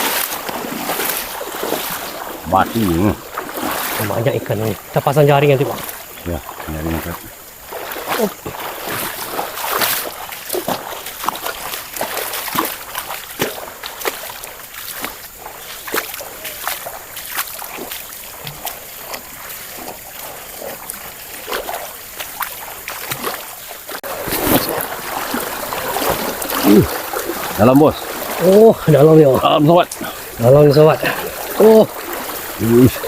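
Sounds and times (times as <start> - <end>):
stream flowing: 0.0 - 33.0
water splashing from wading: 0.0 - 33.0.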